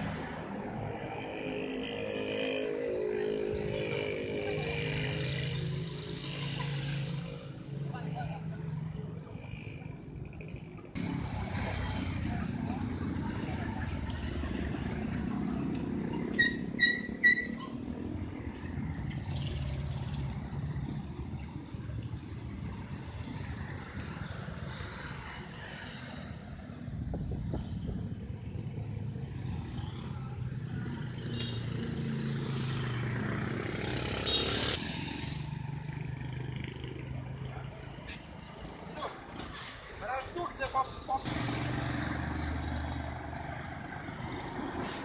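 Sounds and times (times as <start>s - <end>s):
street traffic: 0.0s - 45.0s.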